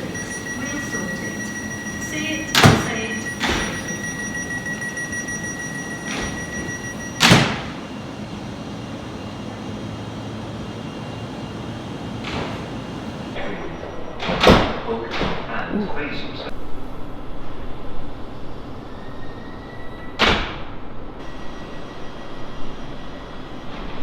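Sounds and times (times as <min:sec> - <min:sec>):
sliding doors thudding shut: 0:00.0 - 0:07.8, 0:12.2 - 0:12.9
train door warning tone: 0:00.0 - 0:08.0, 0:12.4 - 0:15.5, 0:21.2 - 0:24.0.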